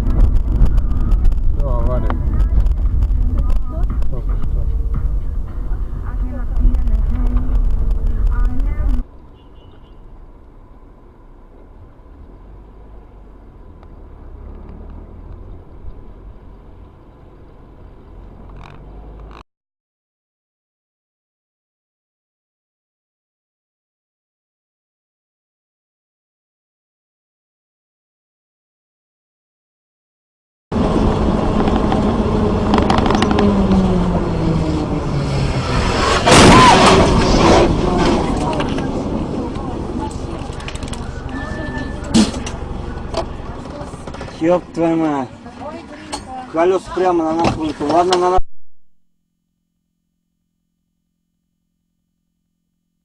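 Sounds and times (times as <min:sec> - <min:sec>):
vehicle engine and road noise: 0:00.0 - 0:19.4, 0:30.7 - 0:48.7.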